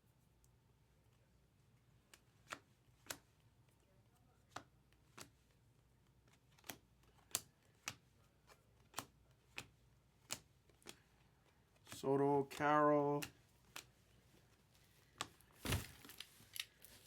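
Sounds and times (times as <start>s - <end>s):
trading cards clicking: 6.2s - 11.1s.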